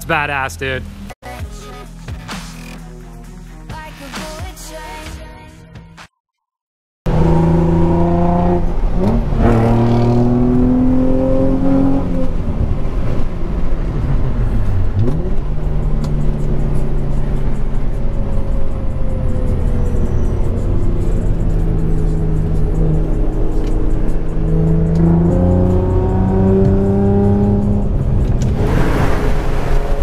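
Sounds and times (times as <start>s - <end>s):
car engine revving hard: 7.1s - 12.6s, 18.6s - 30.0s.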